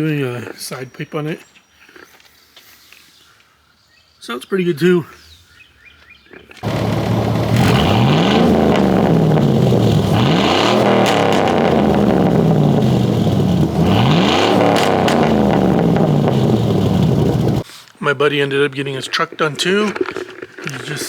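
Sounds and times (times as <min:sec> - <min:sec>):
truck engine revving: 0:06.6 - 0:17.6.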